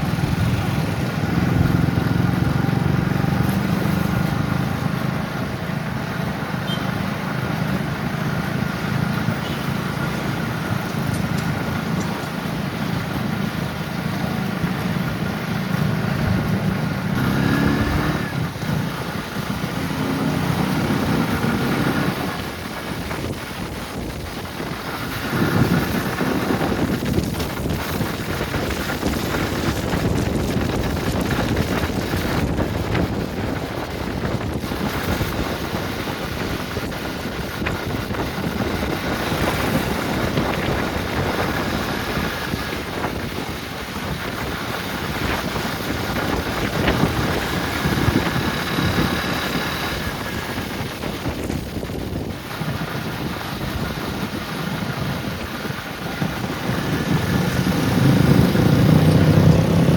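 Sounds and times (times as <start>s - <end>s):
outdoor noise: 0.0s - 59.9s
wind buffeting the microphone: 0.0s - 59.9s.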